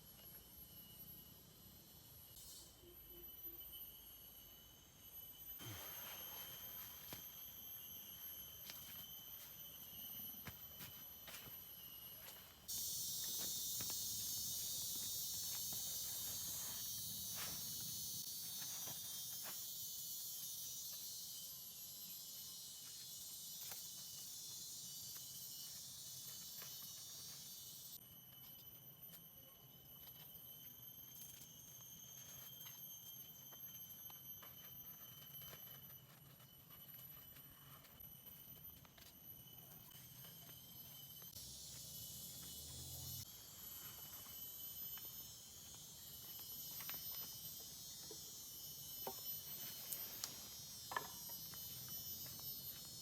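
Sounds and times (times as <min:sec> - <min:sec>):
insects calling shrilly: 0:00.0 - 0:53.0
loud high-pitched insect buzz: 0:00.0 - 0:53.0.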